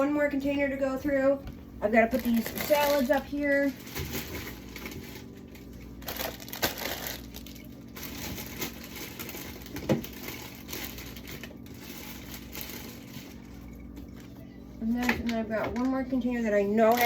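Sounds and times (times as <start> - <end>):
steady low hum: 0.0 - 17.0
packaging knocks and rustling: 6.0 - 13.3.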